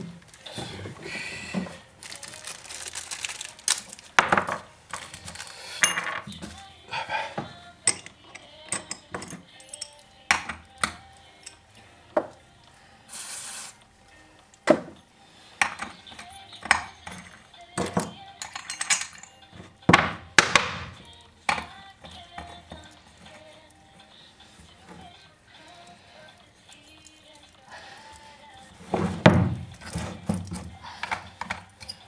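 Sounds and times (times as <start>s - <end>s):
metal tools clinking on workbench: 0.0s - 12.4s, 14.5s - 27.6s, 28.6s - 32.0s
short hiss: 13.0s - 13.9s.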